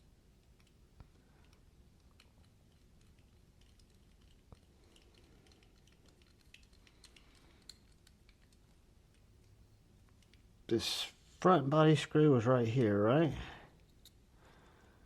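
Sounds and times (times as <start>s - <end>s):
small tools clicking: 1.4s - 10.4s.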